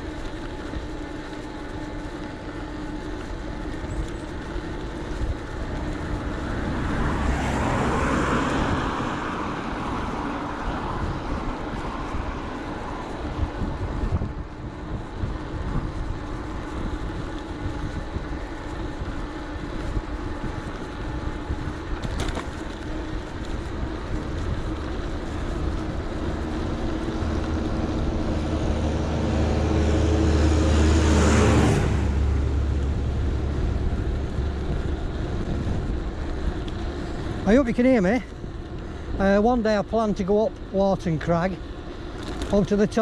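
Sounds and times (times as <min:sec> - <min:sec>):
wind and tyre noise: 0:00.0 - 0:43.0
car passing close by: 0:06.4 - 0:12.9, 0:27.1 - 0:33.8.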